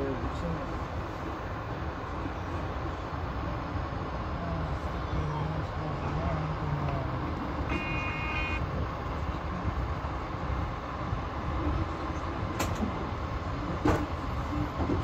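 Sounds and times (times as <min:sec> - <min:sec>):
brief high tone: 0:07.7 - 0:08.6
train wheels rumbling on rails: 0:08.8 - 0:15.0.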